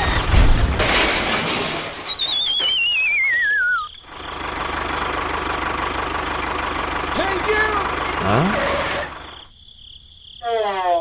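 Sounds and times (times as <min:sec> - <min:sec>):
descending wavering whistle: 0:02.0 - 0:04.0
small engine pulsing: 0:02.4 - 0:09.4.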